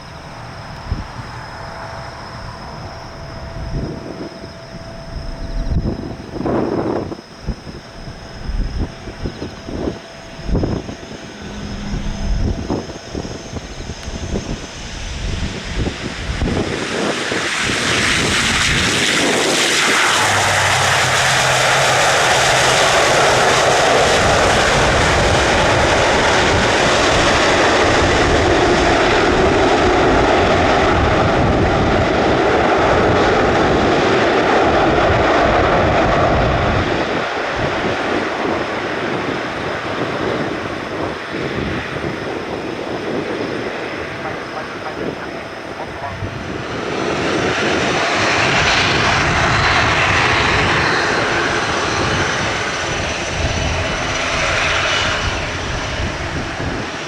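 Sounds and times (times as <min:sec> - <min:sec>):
jet airliner landing: 0:00.0 - 0:57.0.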